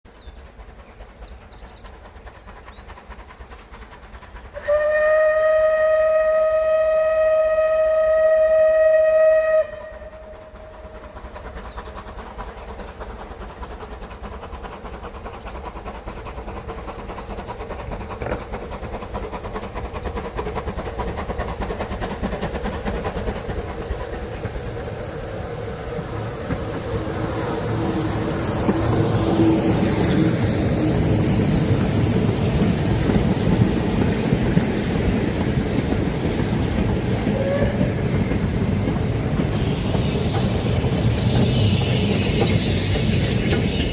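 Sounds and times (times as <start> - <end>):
steam train running: 0.1 - 43.9
steam locomotive whistle: 4.6 - 11.0, 37.2 - 43.9.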